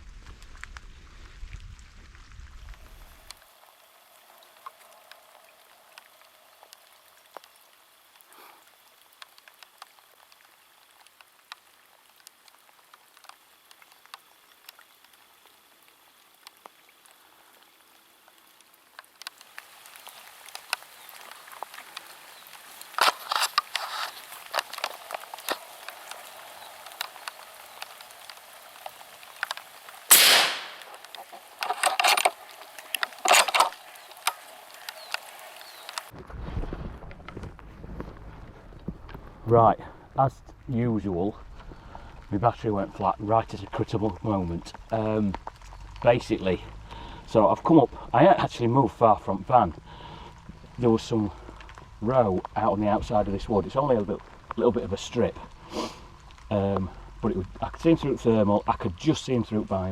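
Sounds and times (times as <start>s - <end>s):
raindrops pattering on clothing: 0.0s - 59.9s
rustling and handling noise: 18.9s - 30.1s, 30.7s - 39.4s.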